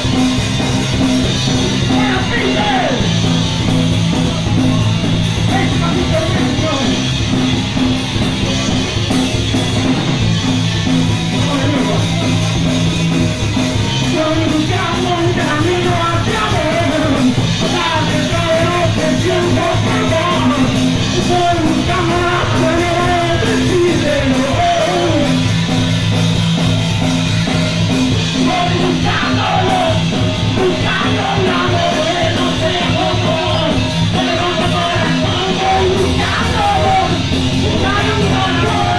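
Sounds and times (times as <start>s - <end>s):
punk rock band playing: 0.0s - 38.9s
person singing: 14.0s - 25.5s, 28.4s - 38.9s.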